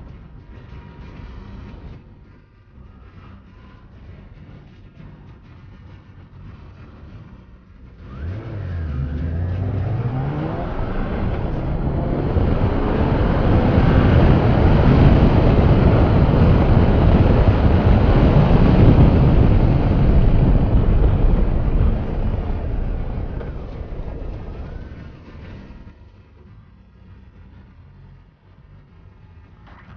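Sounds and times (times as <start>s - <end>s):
motorcycle engine revving: 5.9s - 29.9s
steady rushing noise: 7.8s - 29.9s.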